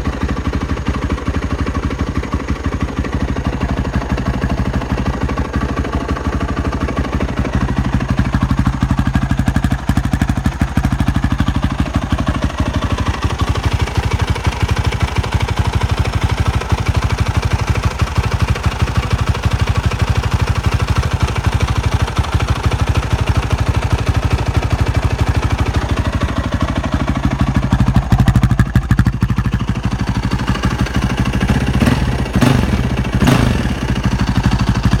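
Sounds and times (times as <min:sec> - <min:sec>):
motorcycle engine idling: 0:00.0 - 0:35.0
engine revving: 0:31.4 - 0:34.0.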